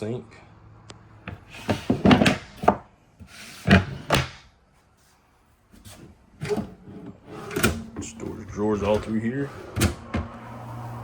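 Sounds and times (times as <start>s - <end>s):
drawers knocking and sliding: 1.3s - 4.4s, 5.8s - 10.4s.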